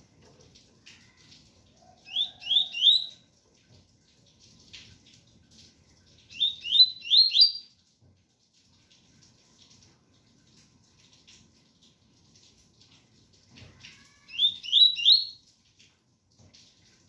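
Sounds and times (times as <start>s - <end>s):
faint rain patter: 0.0s - 17.0s
bird singing whistled notes: 2.1s - 3.2s, 6.3s - 7.7s, 14.3s - 15.4s.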